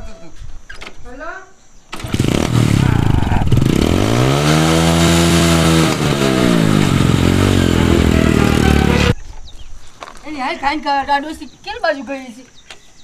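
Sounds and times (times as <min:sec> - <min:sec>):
motorcycle engine revving: 0:01.9 - 0:09.2.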